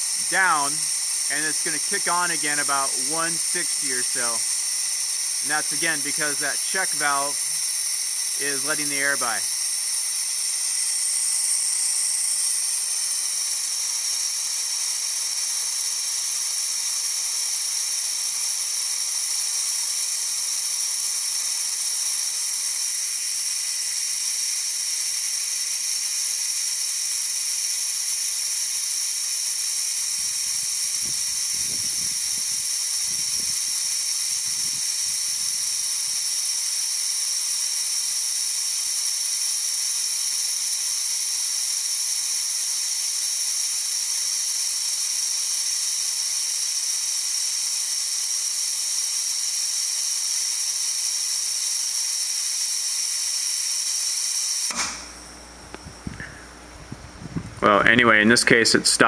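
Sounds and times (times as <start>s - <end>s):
compressed air hissing: 0.0s - 12.9s, 28.6s - 43.0s, 54.6s - 56.7s.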